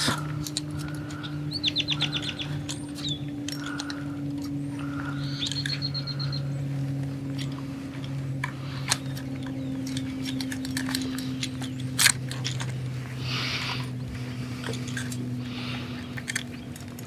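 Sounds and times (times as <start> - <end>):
bird trilling: 0.0 - 6.8
steady low hum: 0.0 - 17.0.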